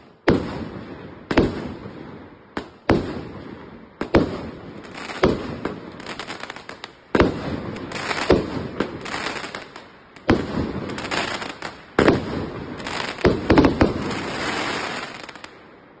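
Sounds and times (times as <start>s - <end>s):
firework crackling: 0.0s - 15.8s.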